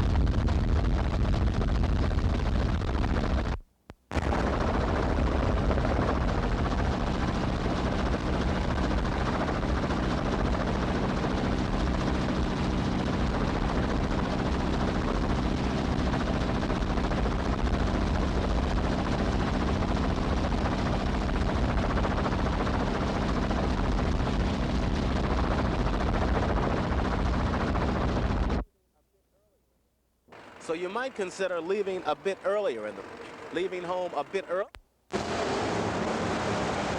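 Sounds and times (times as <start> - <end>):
low hum: 0.0 - 28.7
loud engine drone: 4.2 - 28.6, 30.3 - 36.9.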